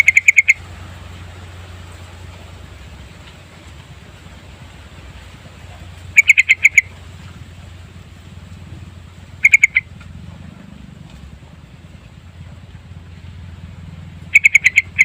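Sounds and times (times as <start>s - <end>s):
bulbul calling: 0.0s - 0.8s, 5.6s - 7.2s, 8.7s - 10.2s, 14.2s - 15.0s
steady low background noise: 0.0s - 15.0s.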